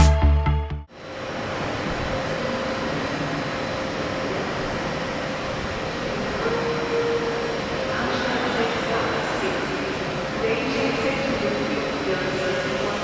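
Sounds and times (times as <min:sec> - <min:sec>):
train running noise: 0:00.9 - 0:13.0.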